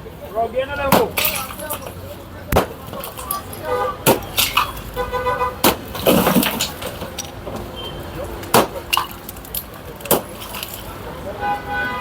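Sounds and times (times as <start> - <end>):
street noise: 0.0 - 12.0
sharp bangs and knocks: 2.5 - 4.9, 5.6 - 7.6.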